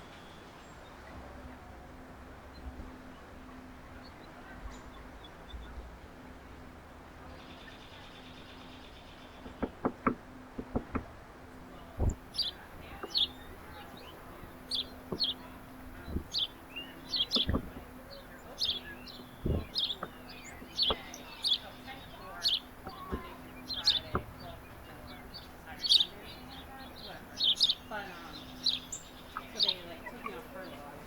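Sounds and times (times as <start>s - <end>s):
small songbirds chirping: 0.0s - 10.8s, 11.6s - 31.0s
sharp knocks: 9.4s - 11.2s, 17.3s - 18.0s, 19.4s - 21.2s.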